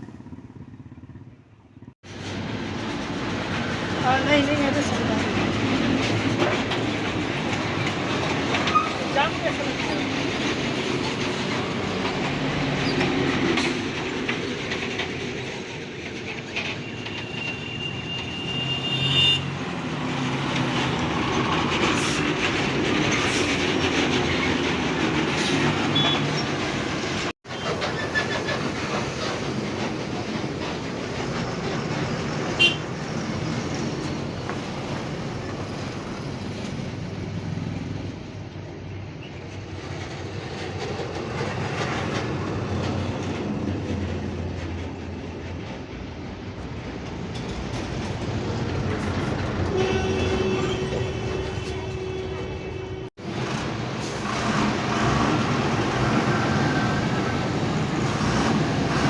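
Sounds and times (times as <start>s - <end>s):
heavy trucks rumbling past: 0.0s - 15.4s, 46.0s - 59.0s.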